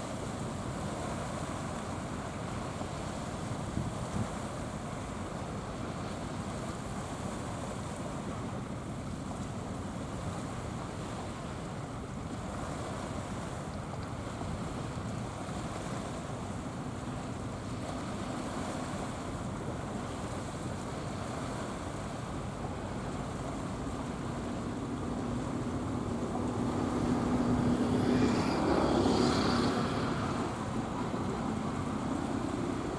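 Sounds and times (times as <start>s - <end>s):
wind noise on microphone: 0.0s - 5.1s
low engine hum: 0.0s - 32.9s
waves washing: 0.0s - 32.9s.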